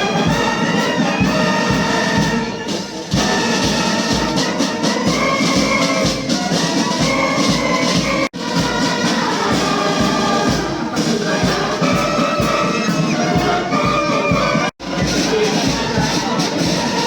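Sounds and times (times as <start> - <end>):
brass band playing: 0.0 - 17.0
steady drum beat: 0.0 - 17.0.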